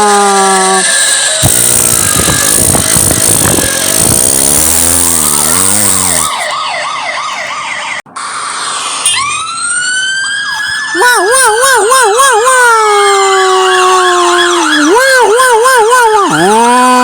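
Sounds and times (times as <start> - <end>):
cartoon motor revving: 0.0 - 6.6
siren winding up: 0.3 - 17.0
police siren wailing: 0.8 - 17.0.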